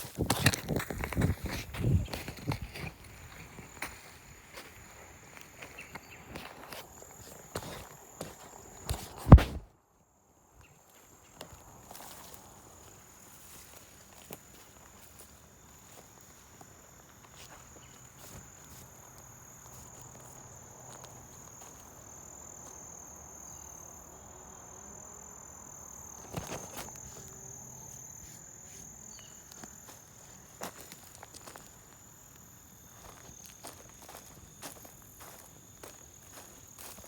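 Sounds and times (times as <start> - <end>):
high-pitched insect trill: 10.6 - 37.0.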